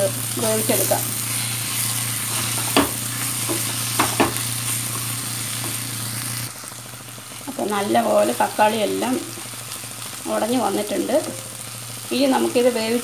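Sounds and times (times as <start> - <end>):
masala sizzling in a pan: 0.0 - 13.0
spatula knocking against pan: 2.6 - 4.4.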